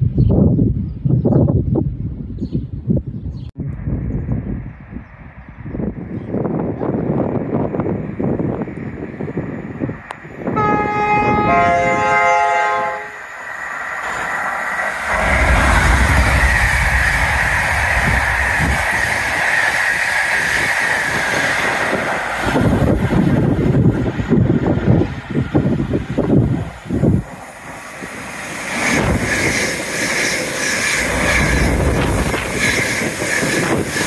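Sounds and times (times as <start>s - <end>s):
train passing at speed: 5.2s - 34.0s
two-tone train horn: 10.4s - 13.4s.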